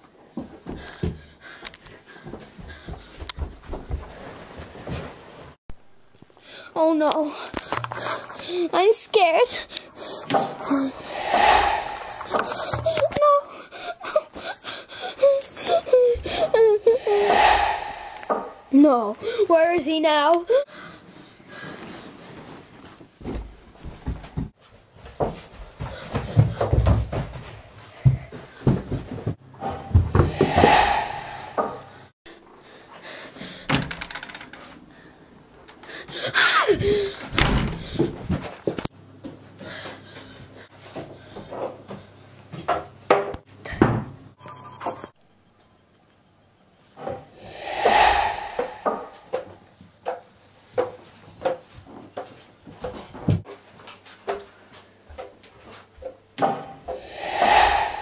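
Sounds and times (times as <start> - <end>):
footsteps on wooden staircase: 2.1 - 5.0
loud rush of noise: 10.9 - 12.9, 17.0 - 18.7, 30.2 - 32.1, 47.4 - 49.4, 57.0 - 58.0.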